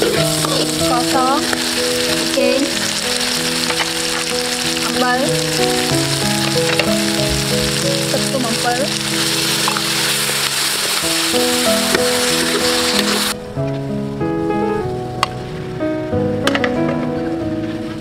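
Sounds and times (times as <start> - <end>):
food sizzling in hot oil: 0.0 - 13.4
melody playing: 0.0 - 15.3.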